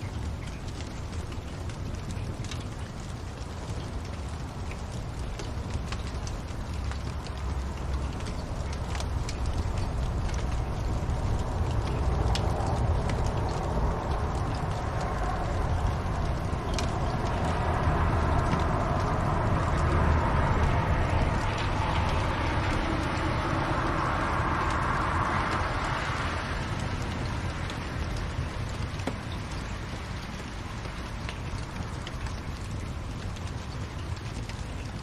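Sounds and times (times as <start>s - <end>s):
fire crackles and pops: 0.0s - 35.0s
fire hissing in fireplace: 0.6s - 35.0s.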